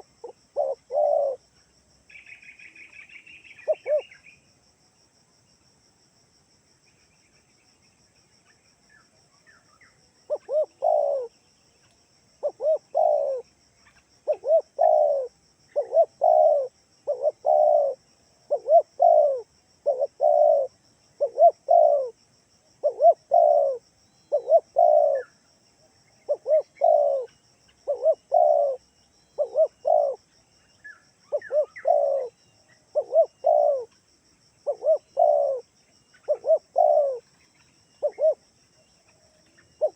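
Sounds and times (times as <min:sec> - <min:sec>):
dove cooing: 0:00.0 - 0:01.5, 0:03.5 - 0:04.2, 0:10.3 - 0:11.4, 0:12.4 - 0:13.5, 0:14.2 - 0:22.2, 0:22.8 - 0:25.4, 0:26.2 - 0:28.8, 0:29.4 - 0:30.2, 0:31.2 - 0:34.0, 0:34.6 - 0:37.3, 0:38.0 - 0:38.4, 0:39.1 - 0:39.9.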